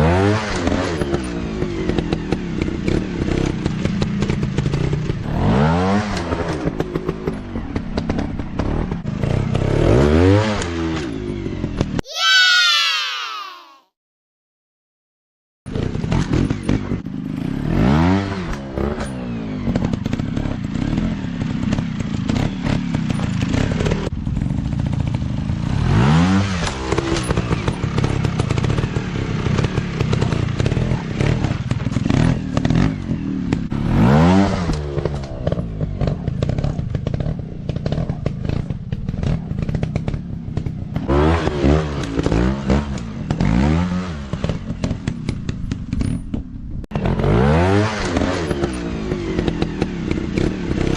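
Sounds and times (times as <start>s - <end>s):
dirt bike engines revving: 15.7s - 46.0s, 46.9s - 50.9s.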